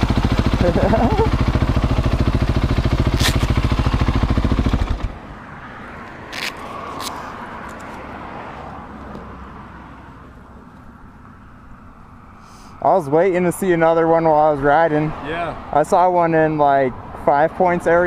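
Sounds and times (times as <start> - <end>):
motorcycle engine idling: 0.0 - 5.2.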